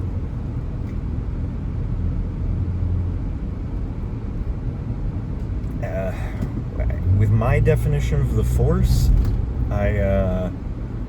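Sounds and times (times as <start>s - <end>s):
low engine drone: 0.0s - 11.0s
car cabin rumble: 3.1s - 11.0s.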